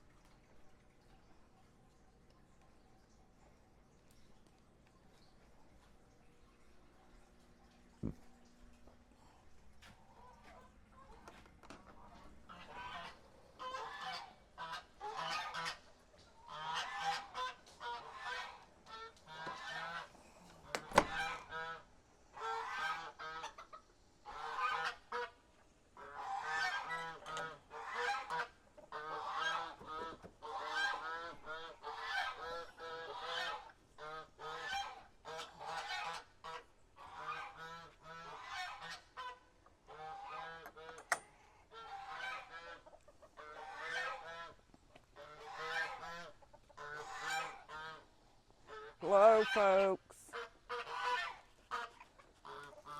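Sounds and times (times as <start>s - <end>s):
geese honking: 10.1s - 25.4s, 26.0s - 44.6s, 45.2s - 52.9s.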